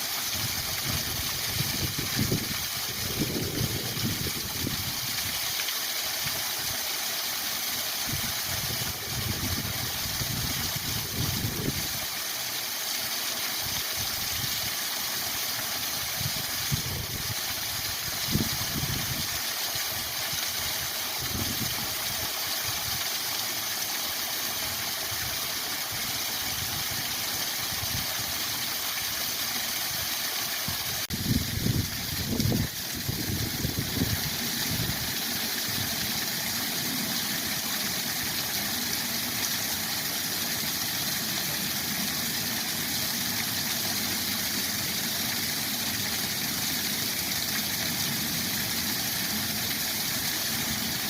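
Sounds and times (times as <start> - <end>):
waterfall rushing: 26.6 - 51.0.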